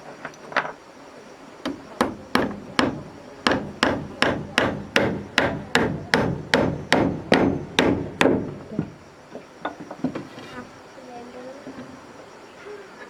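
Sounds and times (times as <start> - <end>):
hammer blows on wood: 1.6 - 9.0.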